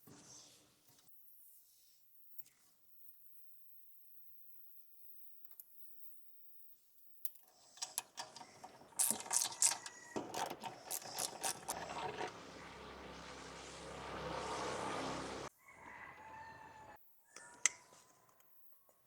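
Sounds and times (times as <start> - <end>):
hand tools clicking and knocking metal: 7.7 - 13.1.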